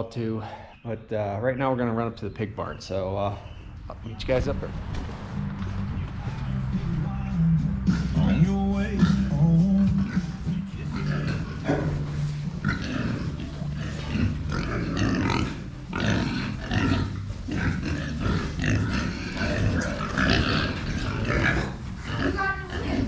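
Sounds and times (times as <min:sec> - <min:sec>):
pigs grunting and squealing: 0:07.7 - 0:23.0.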